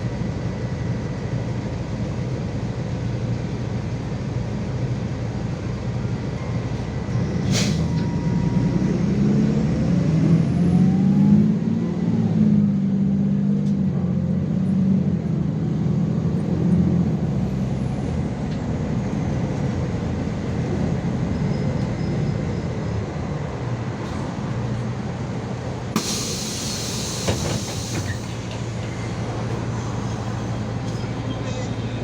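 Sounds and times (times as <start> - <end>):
bus engine hum: 0.0 - 32.0
compressed air hiss: 26.0 - 28.4.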